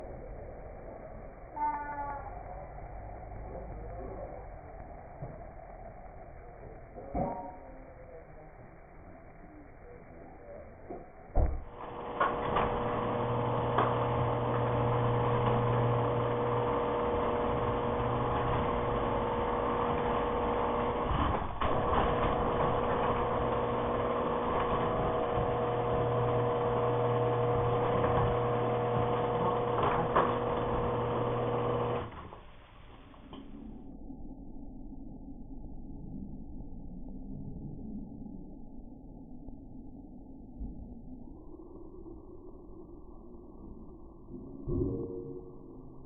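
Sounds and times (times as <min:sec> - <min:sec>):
garage door opener motor hum: 0:11.3 - 0:33.6.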